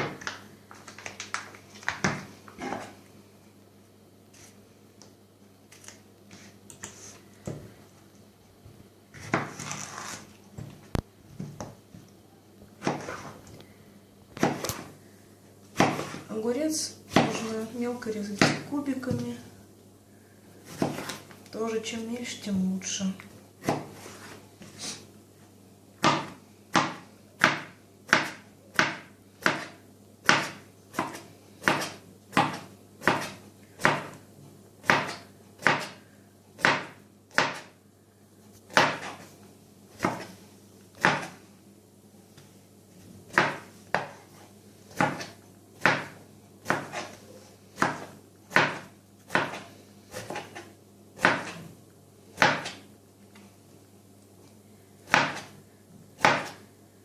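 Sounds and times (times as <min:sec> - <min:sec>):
knife chopping on cutting board: 0:09.2 - 0:10.8, 0:12.8 - 0:13.4, 0:14.4 - 0:14.9, 0:15.8 - 0:16.3, 0:17.1 - 0:17.5, 0:20.7 - 0:21.2, 0:23.6 - 0:23.9, 0:26.0 - 0:34.2, 0:34.8 - 0:36.0, 0:36.6 - 0:37.7, 0:38.7 - 0:39.2, 0:40.0 - 0:40.3, 0:41.0 - 0:41.4, 0:43.3 - 0:44.2, 0:44.9 - 0:47.2, 0:47.8 - 0:51.6, 0:52.4 - 0:52.8, 0:55.1 - 0:55.5, 0:56.2 - 0:56.6.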